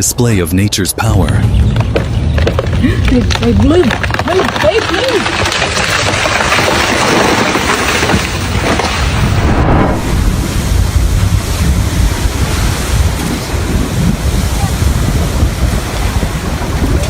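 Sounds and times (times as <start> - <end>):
strong wind buffeting microphone: 1.1 - 5.5, 8.4 - 17.0
hissing noise: 9.1 - 14.1.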